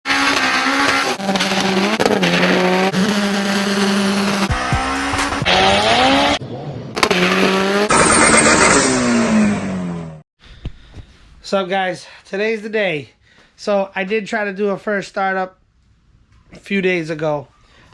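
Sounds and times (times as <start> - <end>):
tires squealing: 0.1 - 9.6
car engines running: 0.1 - 10.1.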